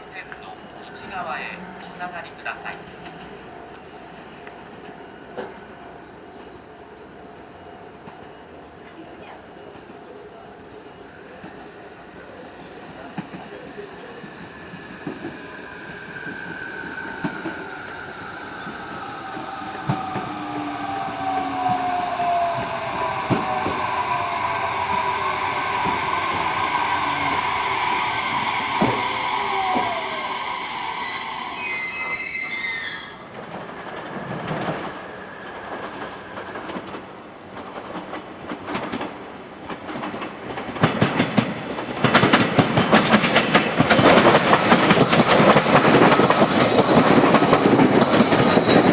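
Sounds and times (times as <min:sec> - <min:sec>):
train inverter whine: 0:00.0 - 0:40.6, 0:41.2 - 0:48.9
wheels rattling on rail: 0:00.0 - 0:48.9
high squeal: 0:14.5 - 0:36.6, 0:44.0 - 0:48.9
rail clatter: 0:18.7 - 0:48.9.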